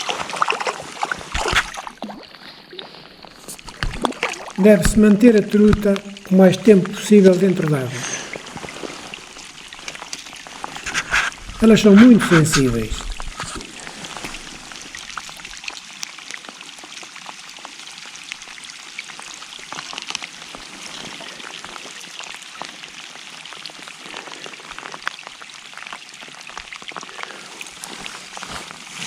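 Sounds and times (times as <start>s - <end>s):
water splashing and trickling: 0.0s - 29.0s.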